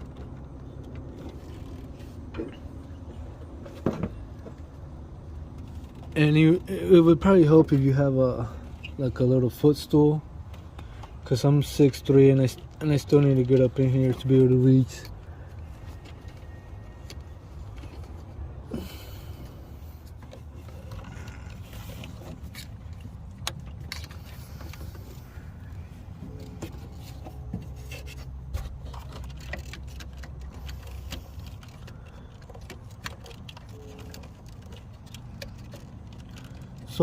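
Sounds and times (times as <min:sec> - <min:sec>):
small clicks knocks and rattles: 0:26.3 - 0:37.0.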